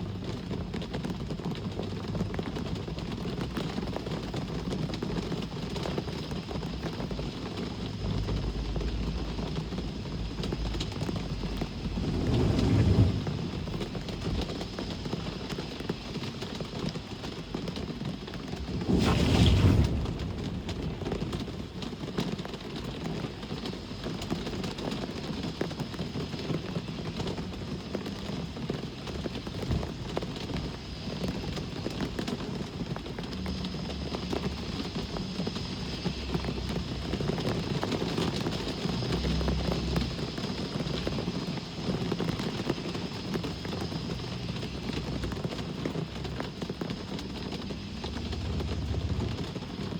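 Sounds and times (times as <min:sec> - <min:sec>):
steady rain: 0:00.0 - 0:49.9
passing vehicles rumbling: 0:07.0 - 0:17.1, 0:18.3 - 0:22.9, 0:33.2 - 0:49.9
sudden loud burst: 0:11.5 - 0:15.0, 0:18.6 - 0:21.7.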